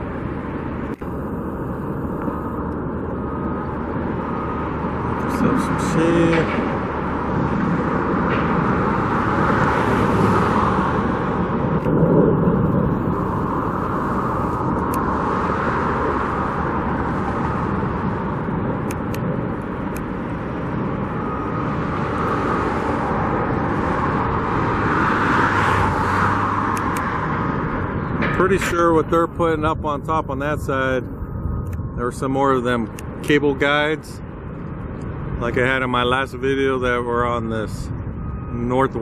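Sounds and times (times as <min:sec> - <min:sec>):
cars passing: 0:00.0 - 0:39.0.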